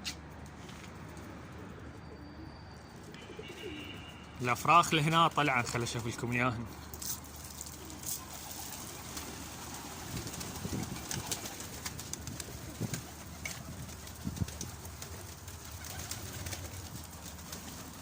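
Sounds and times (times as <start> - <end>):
pigeons cooing: 7.4 - 18.0.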